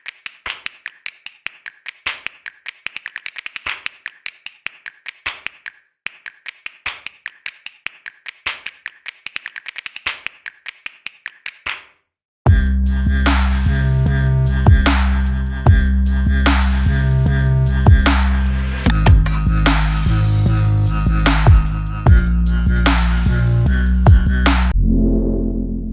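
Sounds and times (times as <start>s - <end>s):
rapid sharp clicks: 0.0s - 11.8s.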